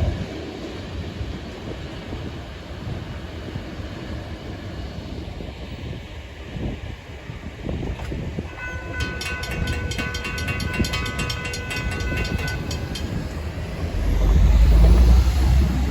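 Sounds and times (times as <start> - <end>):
freight train rumbling: 0.0 - 15.9
high ringing with rapid clicks: 8.6 - 14.6.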